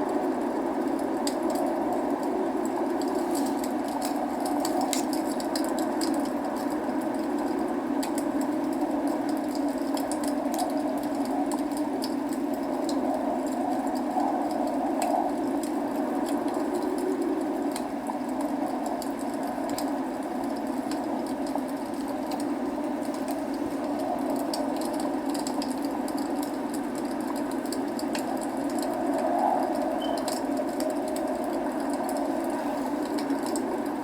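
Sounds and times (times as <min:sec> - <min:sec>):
burning logs crackling: 0:00.0 - 0:34.0
steady rain: 0:00.0 - 0:34.0.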